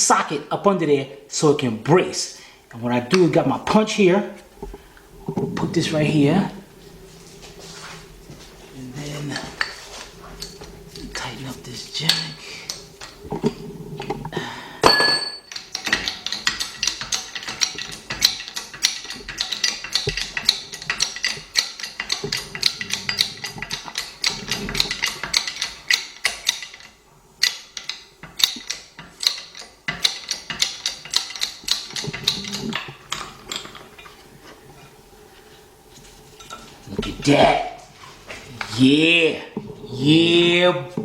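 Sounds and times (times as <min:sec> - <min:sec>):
sharp metallic ring: 0:14.8 - 0:15.5.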